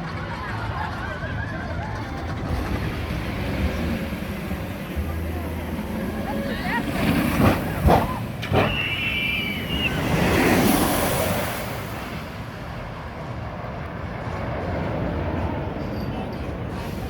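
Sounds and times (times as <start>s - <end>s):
train rumble: 0.0s - 17.0s
brief high squeal: 8.0s - 10.5s.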